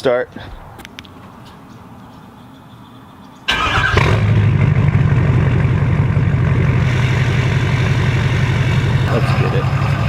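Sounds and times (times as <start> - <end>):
diesel engine cranking: 3.5 - 10.0
diesel engine idling loudly: 4.3 - 10.0.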